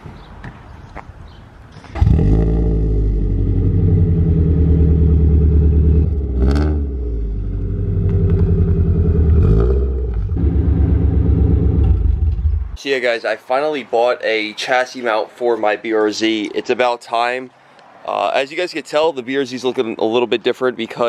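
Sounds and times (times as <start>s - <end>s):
engine revving: 2.0s - 12.8s
car engine running: 2.7s - 12.8s.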